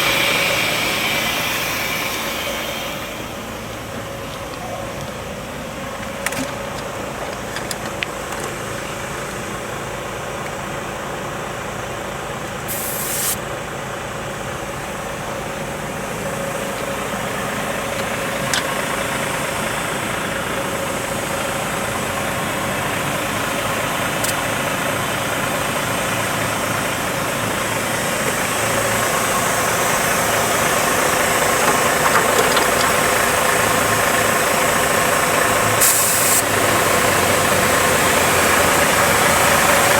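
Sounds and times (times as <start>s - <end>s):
even hiss: 0.0s - 5.0s, 12.6s - 13.7s, 27.9s - 36.8s
truck diesel engine idling: 0.0s - 39.9s.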